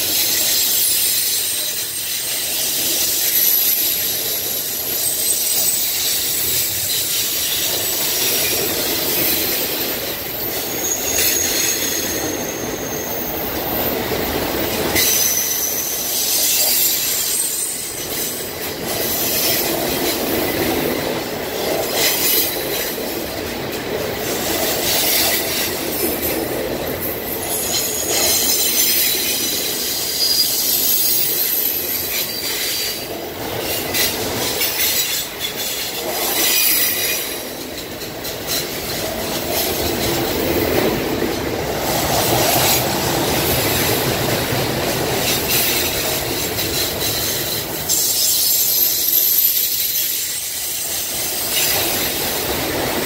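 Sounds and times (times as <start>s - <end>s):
freight train wheels rumbling: 0.0s - 53.0s
high-pitched wheel squeal: 10.4s - 14.2s, 15.0s - 18.1s, 27.5s - 33.1s, 45.2s - 52.2s.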